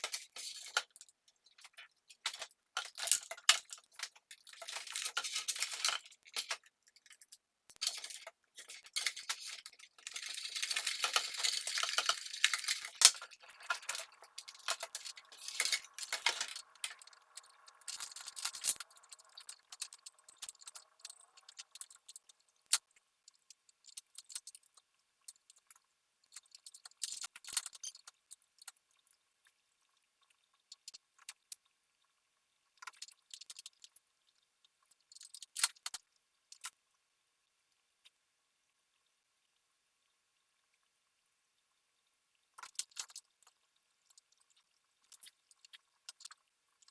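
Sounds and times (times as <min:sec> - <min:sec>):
metal and glass parts clinking: 0:02.3 - 0:07.2, 0:07.8 - 0:21.9.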